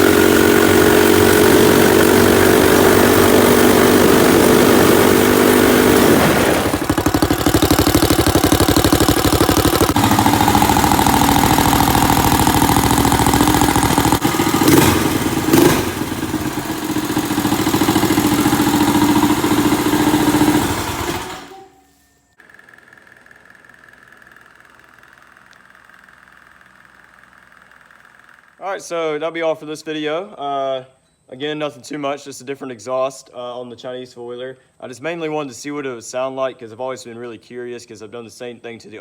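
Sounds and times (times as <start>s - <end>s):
engine with deep exhaust tone: 0.0s - 21.0s.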